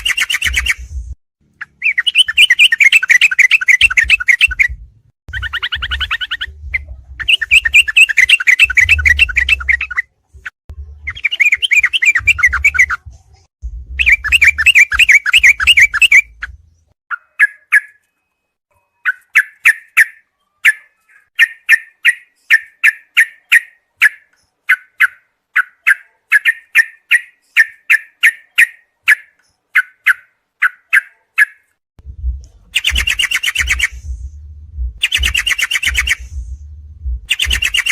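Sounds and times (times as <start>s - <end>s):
low rumble: 13.0s - 14.6s, 32.0s - 33.1s, 33.8s - 35.4s, 36.0s - 37.3s
bird rattling trills: 32.8s - 34.0s, 35.0s - 36.3s, 37.3s - 37.9s
short bird chirps: 32.8s - 34.1s.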